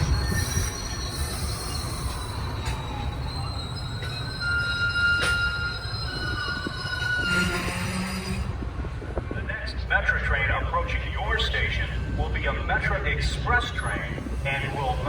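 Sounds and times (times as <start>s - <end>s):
wheels squealing: 0.0s - 8.8s
train rumbling on rails: 0.0s - 15.0s.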